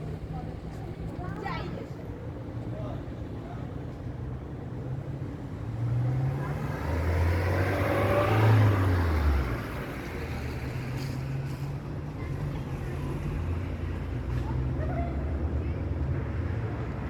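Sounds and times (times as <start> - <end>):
motor vehicle passing by: 5.9 - 11.2.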